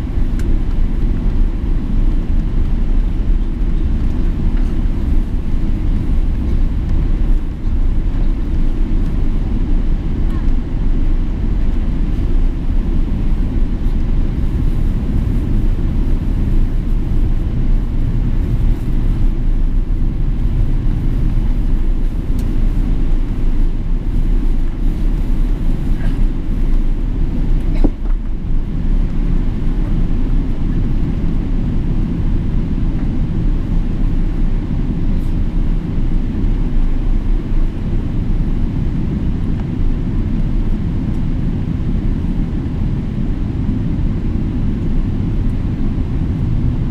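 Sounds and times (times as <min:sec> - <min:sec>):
jet engines rumbling: 0:00.0 - 0:46.9.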